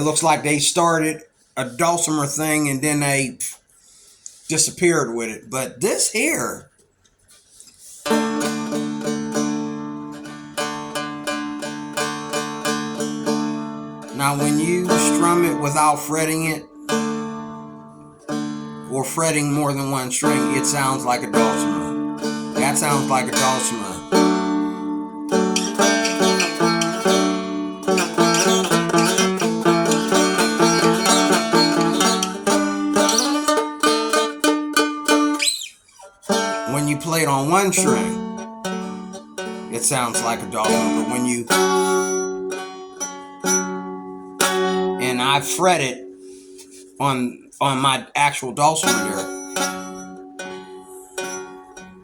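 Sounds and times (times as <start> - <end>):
dulcimer strummed: 0.0 - 3.2, 7.8 - 52.0
ringing drone strings: 37.5 - 44.1.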